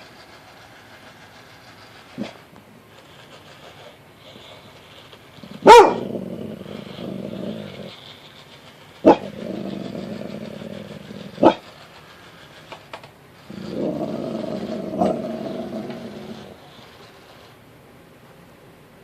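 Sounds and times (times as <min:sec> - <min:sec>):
dog growling: 0:05.4 - 0:11.9, 0:13.4 - 0:17.0
dog barking: 0:05.6 - 0:06.1, 0:11.4 - 0:11.6.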